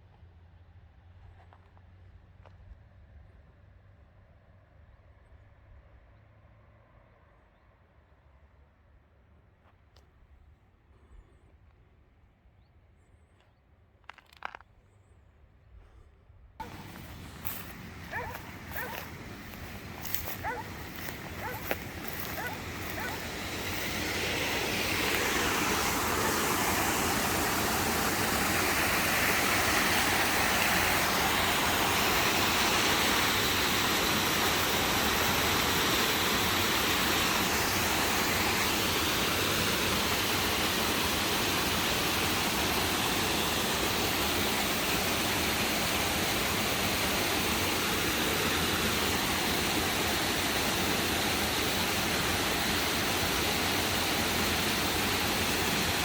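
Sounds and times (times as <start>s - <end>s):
steady rushing noise: 16.6s - 56.0s.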